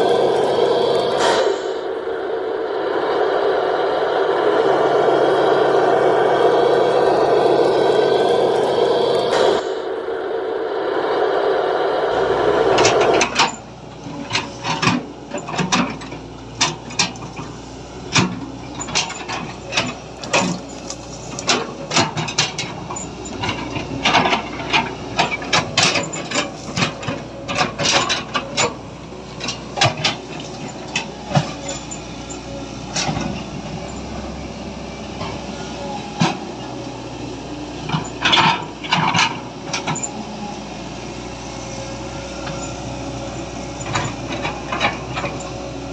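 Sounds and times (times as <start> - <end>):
whirring sound: 0.0 - 13.7.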